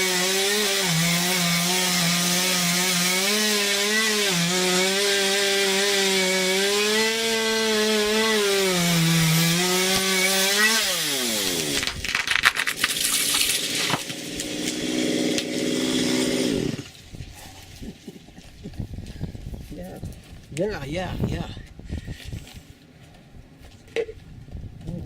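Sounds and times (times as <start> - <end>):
chainsaw cutting through trunk: 0.0 - 17.8
tree cracking and falling: 4.9 - 18.1.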